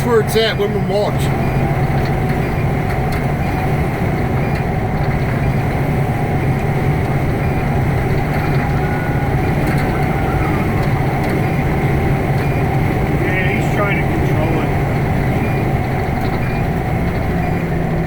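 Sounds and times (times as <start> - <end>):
diesel engine droning: 0.0 - 18.0.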